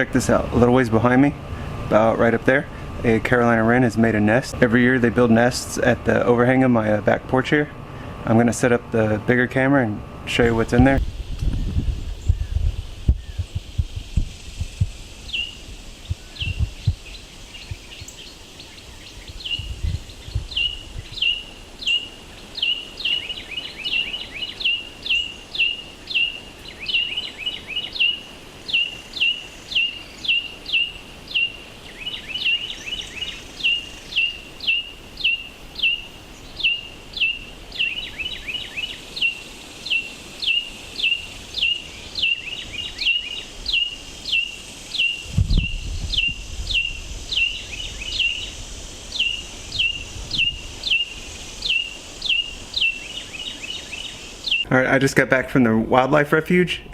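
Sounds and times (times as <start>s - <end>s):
fainter second bird chirping: 14.6s - 54.7s
bird giving sharp downward chirps: 20.4s - 54.7s.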